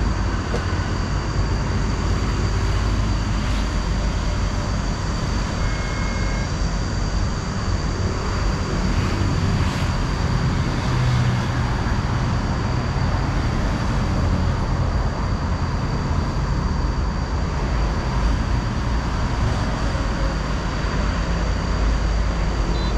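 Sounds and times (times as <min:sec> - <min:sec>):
heavy vehicle engines: 0:00.0 - 0:22.9
road traffic: 0:00.0 - 0:22.9.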